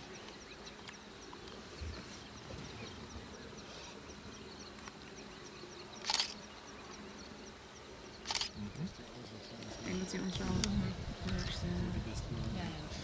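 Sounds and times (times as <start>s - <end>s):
camera shutter burst: 6.0s - 6.4s, 8.2s - 8.6s.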